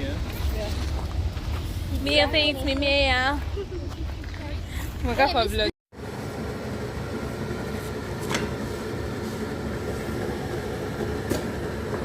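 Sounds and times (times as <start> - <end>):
low mechanical hum: 6.0 - 12.0.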